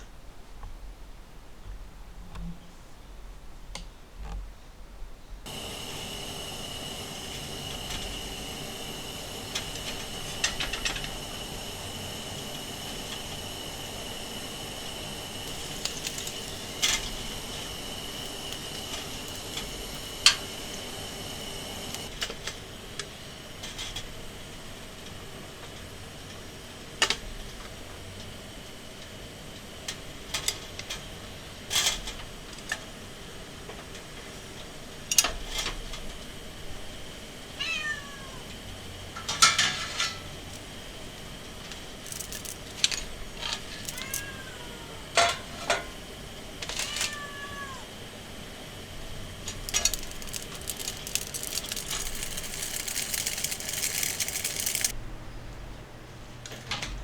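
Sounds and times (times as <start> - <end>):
cat meowing: 37.6 - 38.5, 43.7 - 45.1, 46.7 - 47.9.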